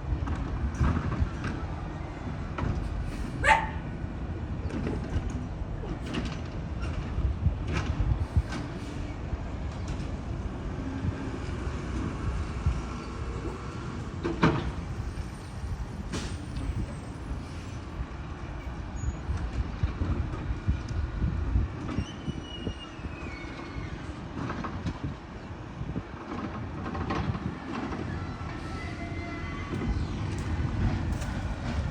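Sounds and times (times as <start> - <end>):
garbage truck engine rumbling: 26.2 - 31.9.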